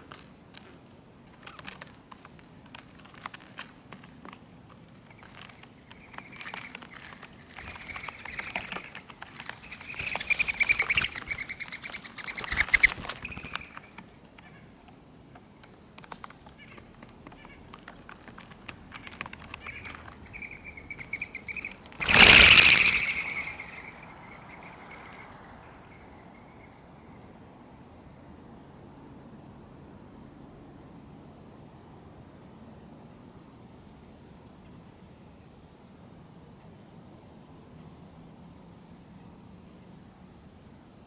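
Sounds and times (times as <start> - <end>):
songbirds chirping: 5.0 - 27.3.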